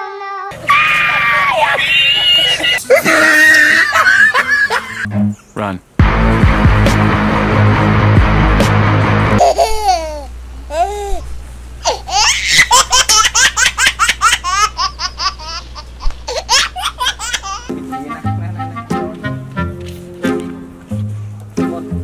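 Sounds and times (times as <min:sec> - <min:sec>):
high laugh-like squealing calls: 0:00.6 - 0:05.1
background music: 0:04.9 - 0:09.4, 0:17.7 - 0:22.0
low steady hum: 0:09.4 - 0:18.9.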